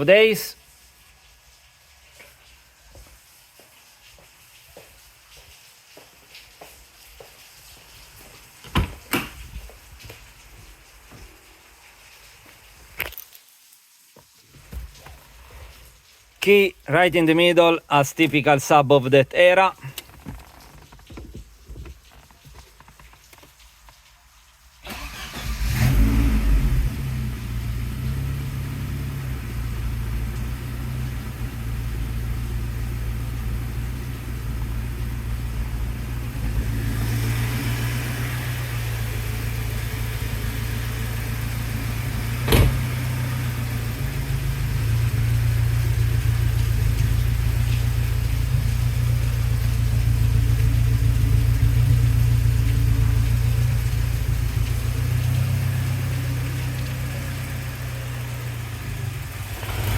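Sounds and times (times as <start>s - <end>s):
car engine starting and idling: 24.8s - 59.9s.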